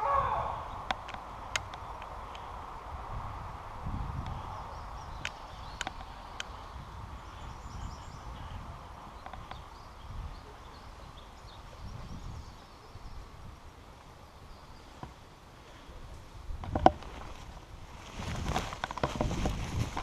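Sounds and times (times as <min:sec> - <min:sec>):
footsteps through brush: 0:16.7 - 0:20.0.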